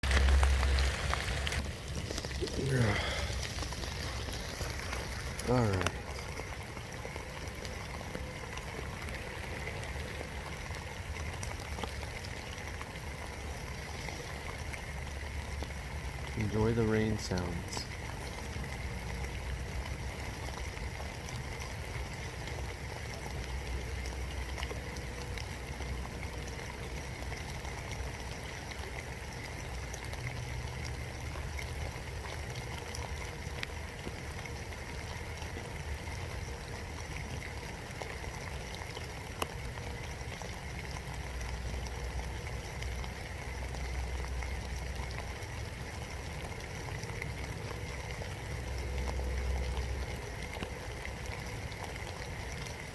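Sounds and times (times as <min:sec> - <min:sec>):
raindrop ticks: 0:00.0 - 0:52.9
steady rain falling: 0:00.0 - 0:52.9.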